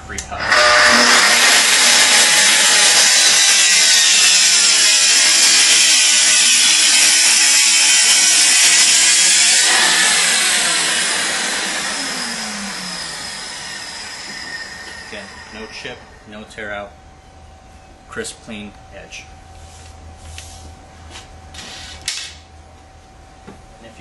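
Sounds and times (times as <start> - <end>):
saw motor winding down: 0.3 - 16.3
circular saw cutting: 0.3 - 16.4.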